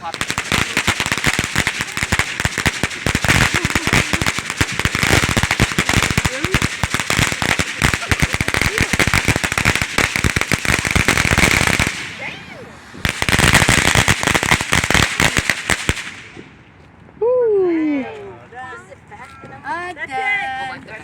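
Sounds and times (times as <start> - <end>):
firecrackers crackling: 0.0 - 16.6.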